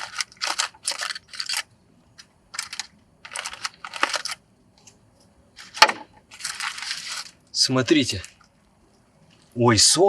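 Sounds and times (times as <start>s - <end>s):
crinkling and rustling: 0.0s - 9.6s.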